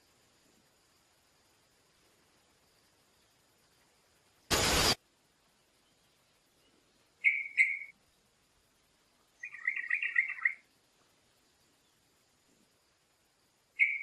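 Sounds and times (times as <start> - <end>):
bird calling: 7.2 - 7.9, 9.4 - 10.7, 13.8 - 14.0.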